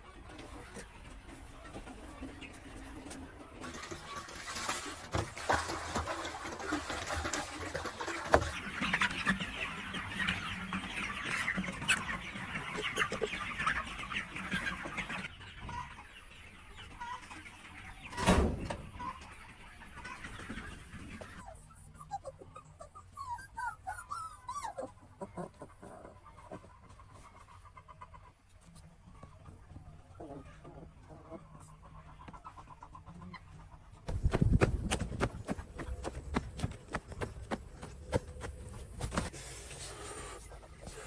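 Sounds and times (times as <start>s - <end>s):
chickens clucking: 0.0s - 41.0s.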